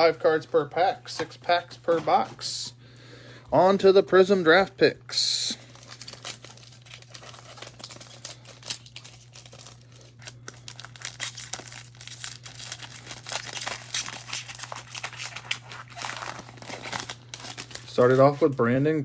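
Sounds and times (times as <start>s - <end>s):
low electrical hum: 0.0s - 19.0s
plastic wrapping crinkling and tearing: 5.5s - 18.6s.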